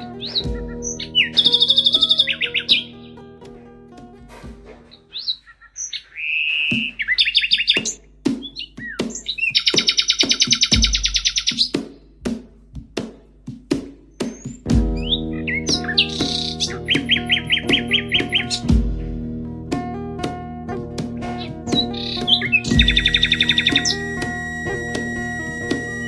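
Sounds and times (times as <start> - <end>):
background music: 0.0 - 5.9, 6.8 - 26.0
songbird trilling and chirping: 8.5 - 11.8.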